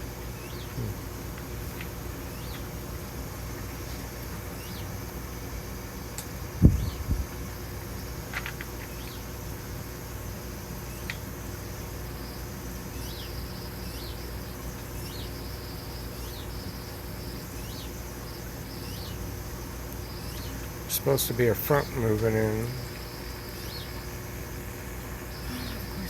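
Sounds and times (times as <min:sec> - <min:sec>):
steady low hum: 0:00.0 - 0:26.0
small bird chirping: 0:02.3 - 0:02.7, 0:04.6 - 0:04.9, 0:10.8 - 0:11.2, 0:12.2 - 0:19.3, 0:19.9 - 0:24.2, 0:25.3 - 0:26.0.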